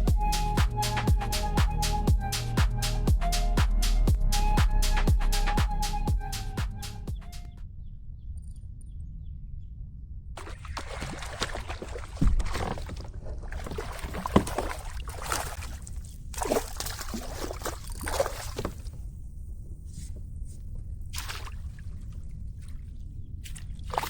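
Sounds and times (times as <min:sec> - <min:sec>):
low rumble: 0:00.0 - 0:08.2
water splashing against kayak: 0:10.4 - 0:19.0.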